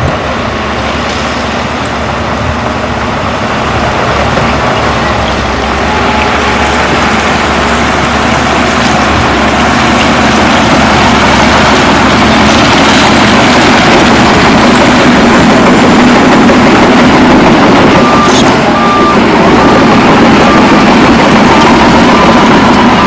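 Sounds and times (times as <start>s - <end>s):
heavy diesel machinery running: 0.0s - 23.0s
reversing alarm beeping: 16.8s - 23.0s.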